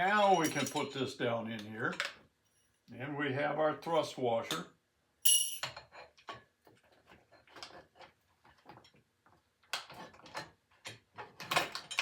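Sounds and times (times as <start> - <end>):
small metal parts clinking: 0.2 - 1.1, 5.2 - 6.1.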